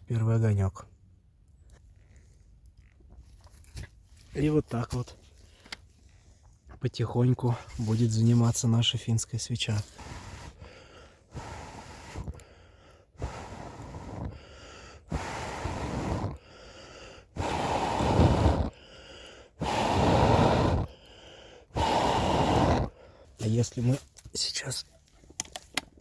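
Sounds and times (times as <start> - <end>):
person blowing on fire: 9.8 - 23.2.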